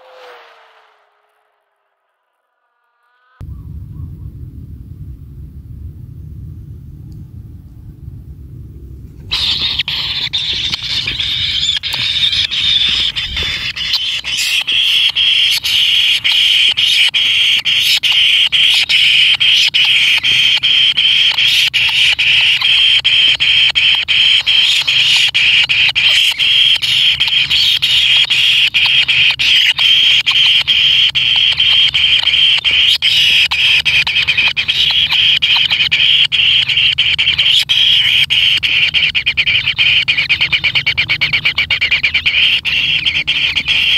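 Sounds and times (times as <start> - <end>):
nestlings begging calls: 9.3 - 43.9.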